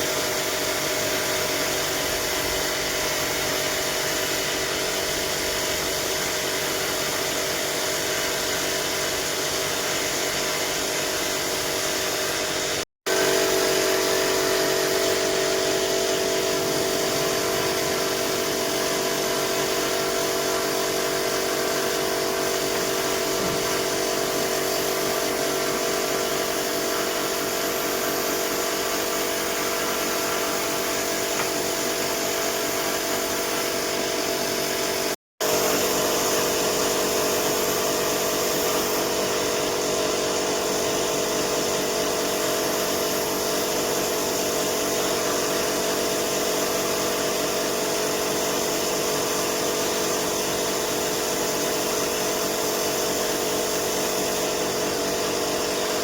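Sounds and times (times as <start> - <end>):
power tool motor humming: 13.1 - 41.0.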